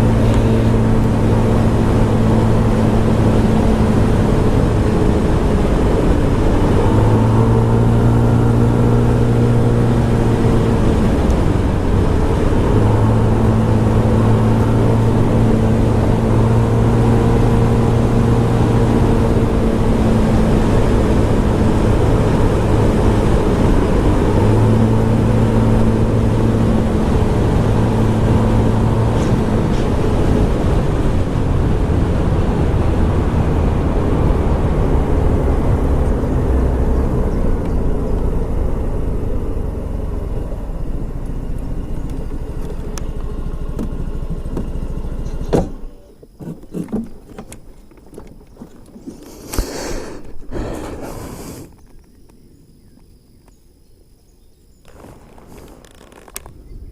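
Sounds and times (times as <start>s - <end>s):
scooter engine running: 0.0s - 51.1s
wind and road noise: 0.0s - 56.9s.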